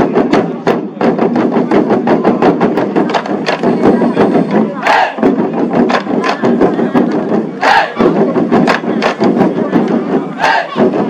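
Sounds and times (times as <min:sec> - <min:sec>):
war drums beating: 0:00.0 - 0:11.0
voices shouting: 0:04.6 - 0:05.3, 0:07.6 - 0:08.2, 0:10.3 - 0:11.0.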